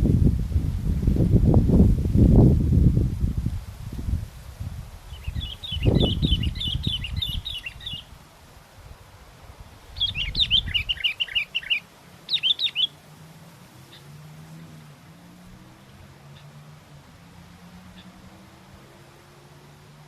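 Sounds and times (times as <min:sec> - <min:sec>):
wind buffeting microphone: 0:00.0 - 0:12.9
small songbird twittering: 0:05.1 - 0:08.2, 0:09.9 - 0:13.0, 0:13.9 - 0:14.2.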